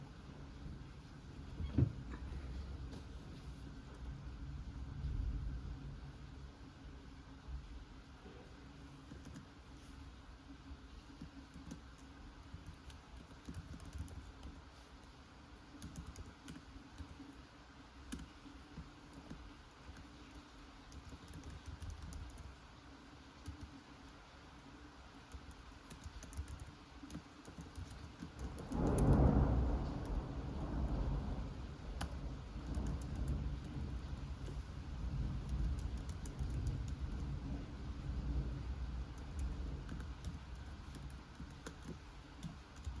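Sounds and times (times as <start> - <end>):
keyboard key clicks: 11.5 - 14.6
thunder rumble: 28.5 - 41.1
rain hissing: 28.5 - 43.0.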